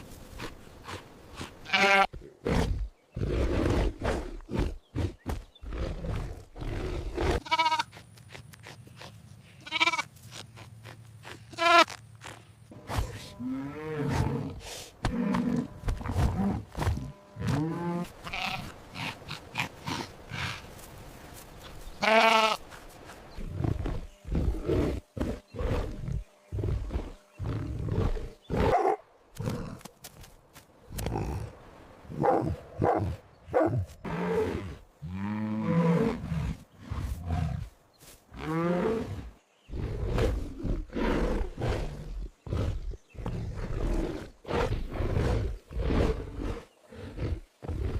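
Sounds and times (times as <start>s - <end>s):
animal cries and grunts: 0.4s - 12.0s
big cat growling: 38.4s - 47.9s
big cat roaring: 38.4s - 47.9s.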